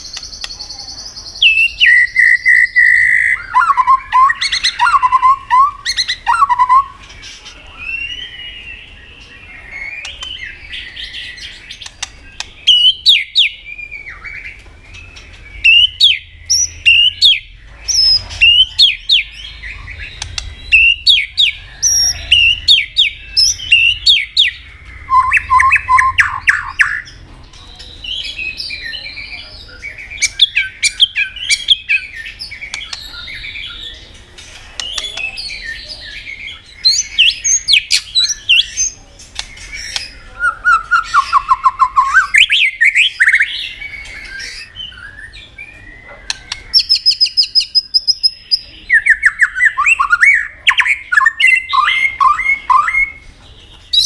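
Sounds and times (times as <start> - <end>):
songbird singing varied song: 0.0 - 54.0.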